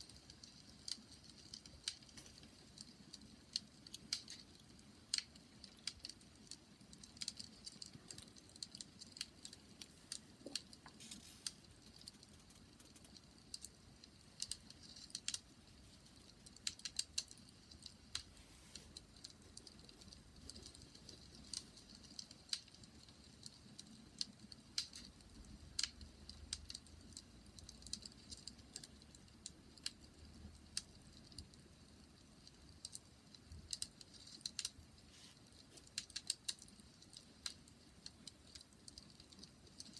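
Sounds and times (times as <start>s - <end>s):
low hiss of flames: 0.0s - 25.0s
wood fire crackling: 0.0s - 39.9s.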